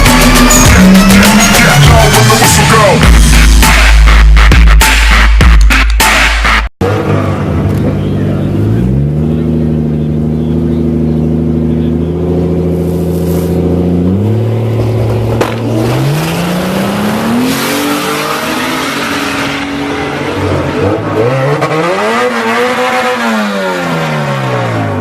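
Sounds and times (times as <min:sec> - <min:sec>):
turbocharged car engine revving: 0:00.0 - 0:25.0.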